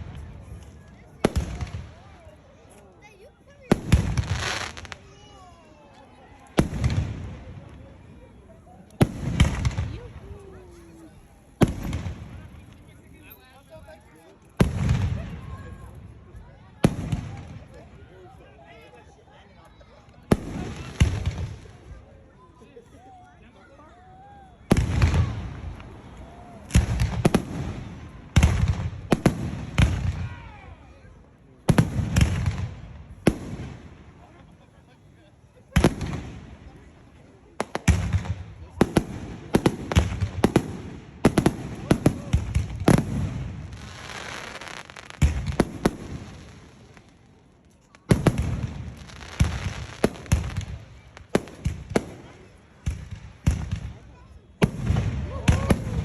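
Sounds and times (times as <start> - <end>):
fireworks bursting: 0.0 - 2.2, 3.6 - 5.4, 6.5 - 8.0, 9.0 - 12.8, 20.3 - 21.9, 24.6 - 30.4, 31.6 - 34.6, 35.4 - 56.0.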